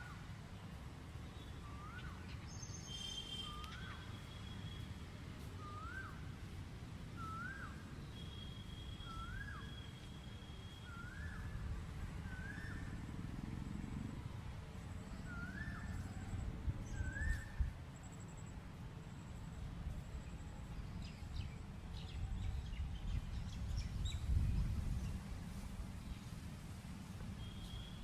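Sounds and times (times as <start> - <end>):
steady low rumble: 11.4 - 28.0.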